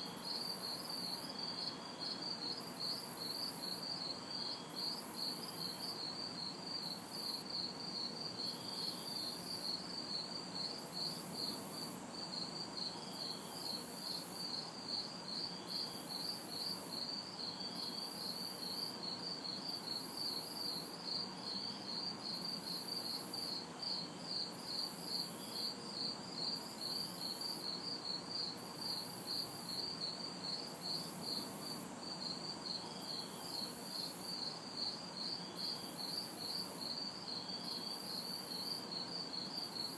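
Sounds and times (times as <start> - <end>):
crickets chirping: 0.0 - 39.9
sparse insect chirp: 0.0 - 39.9.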